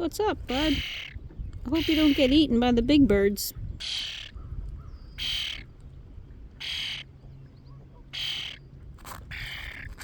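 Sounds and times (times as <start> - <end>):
bird harsh calls: 0.5 - 2.5, 3.8 - 5.8, 6.6 - 8.7, 9.3 - 10.0.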